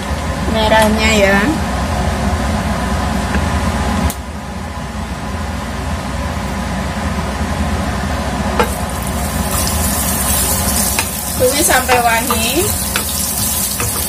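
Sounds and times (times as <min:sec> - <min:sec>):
steady low hum: 0:00.0 - 0:14.0
oil sizzling: 0:08.6 - 0:14.0
pan knock: 0:10.9 - 0:14.0.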